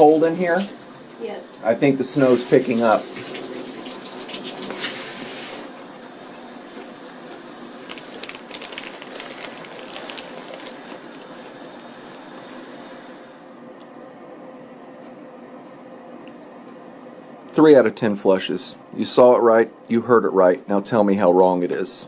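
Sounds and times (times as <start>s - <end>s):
clicks and crackles: 7.8s - 11.2s.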